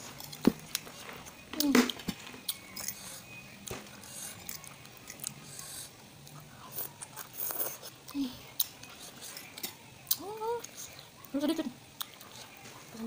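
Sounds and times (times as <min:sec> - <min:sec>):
person chewing noodles: 0:02.4 - 0:03.3, 0:04.0 - 0:11.1.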